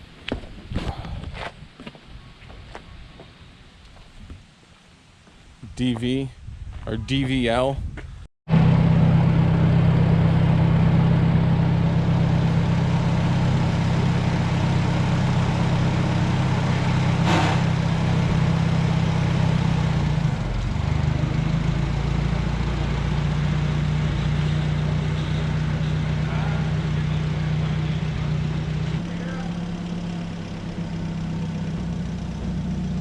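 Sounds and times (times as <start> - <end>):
engine idling: 8.5 - 33.0.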